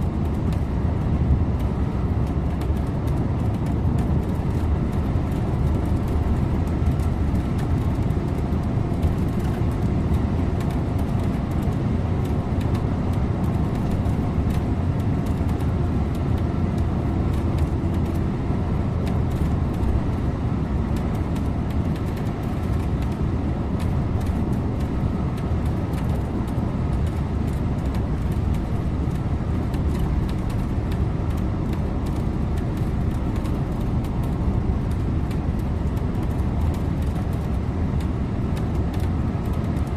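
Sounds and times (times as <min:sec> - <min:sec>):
bus engine and tyre noise: 0:00.0 - 0:39.9.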